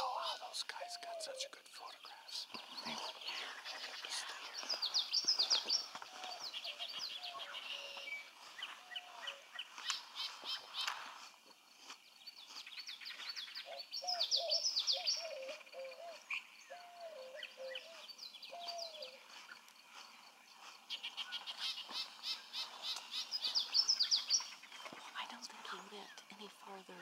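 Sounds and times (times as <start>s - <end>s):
small birds chirping and trilling: 0.0s - 27.0s
low short bird calls: 12.8s - 19.6s.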